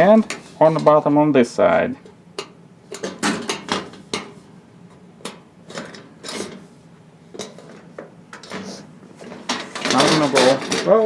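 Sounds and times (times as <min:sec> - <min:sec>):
sheet metal panels clinking and scraping: 0:00.0 - 0:01.3, 0:02.4 - 0:04.4, 0:07.4 - 0:11.0.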